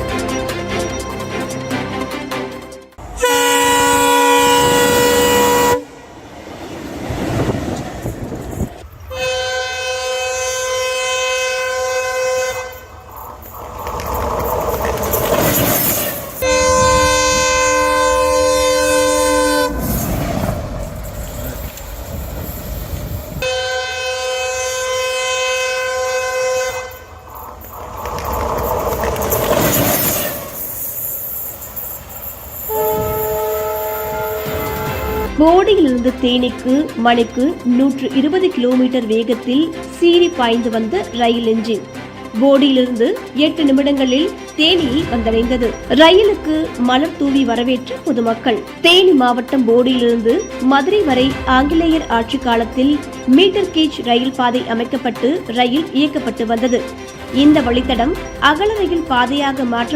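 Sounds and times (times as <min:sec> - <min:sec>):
train wheels rumbling on track: 0:00.0 - 0:59.9
train horn blasts: 0:03.0 - 0:06.2, 0:09.1 - 0:13.0, 0:16.4 - 0:20.3, 0:23.4 - 0:27.2, 0:32.7 - 0:36.8.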